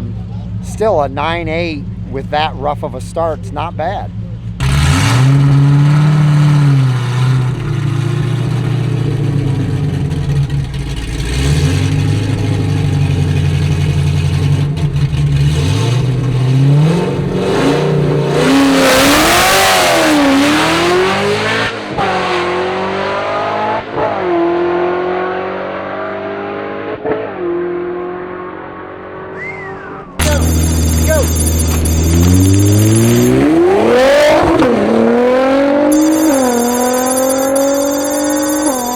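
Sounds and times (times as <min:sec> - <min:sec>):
drag car engine revving: 0:04.6 - 0:21.2.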